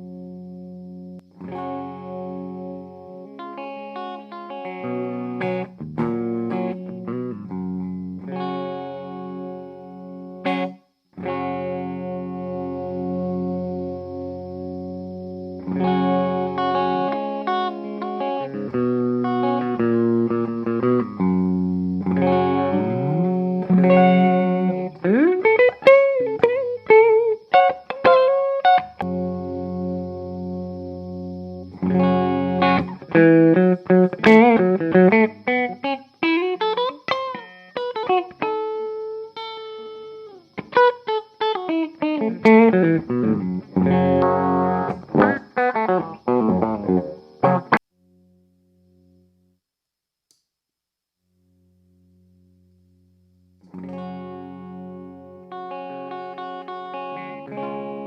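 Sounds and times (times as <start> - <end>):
overdriven electric guitar: 0.0 - 49.3, 53.5 - 58.0.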